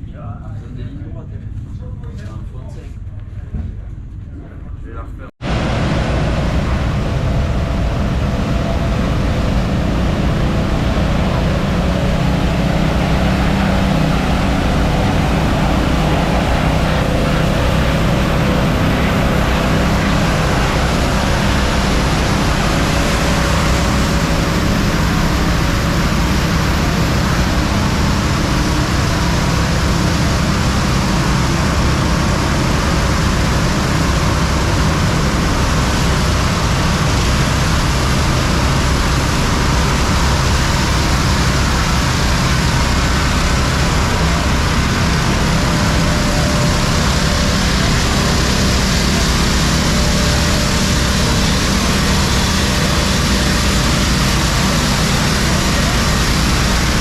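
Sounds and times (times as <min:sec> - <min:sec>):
loud steady rushing noise: 0:05.4 - 0:57.0
low hum: 0:05.4 - 0:57.0.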